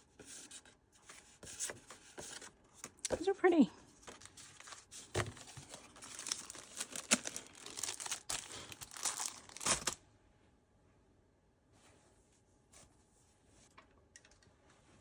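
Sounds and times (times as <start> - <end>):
paper and packaging rustling: 0.3 - 10.0.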